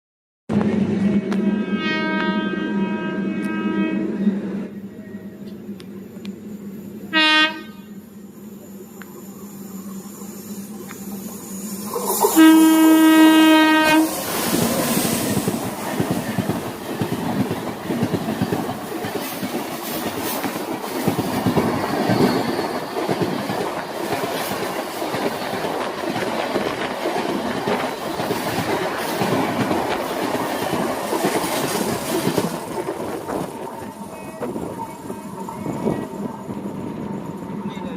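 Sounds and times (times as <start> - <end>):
train wheels rumbling on rails: 0.5 - 37.9
train horn blast: 1.0 - 4.4, 7.1 - 8.0, 12.2 - 14.3.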